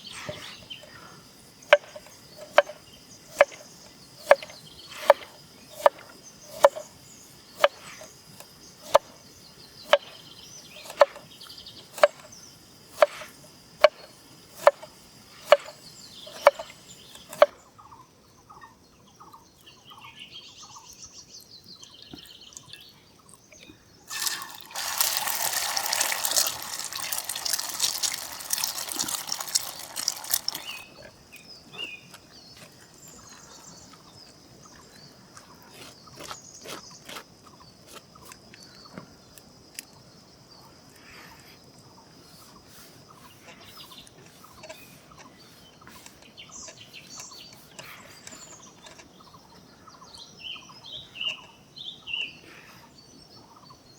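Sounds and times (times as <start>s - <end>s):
knife chopping on cutting board: 4.2s - 6.0s
liquid being poured: 24.1s - 31.1s.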